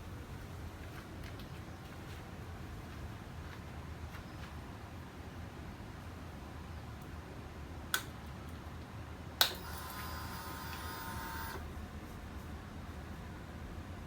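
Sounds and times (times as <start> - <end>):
fuel pump whine: 9.6 - 11.6.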